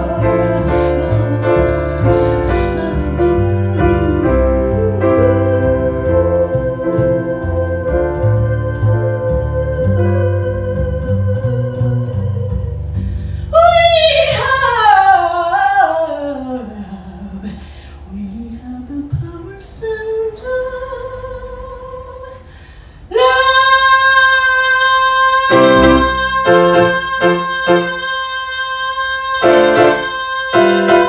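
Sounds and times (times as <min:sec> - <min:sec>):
woman singing wordless vocal run: 0:00.0 - 0:12.9, 0:13.5 - 0:22.5, 0:23.1 - 0:31.0
piano accompaniment: 0:00.0 - 0:14.6, 0:25.4 - 0:31.0.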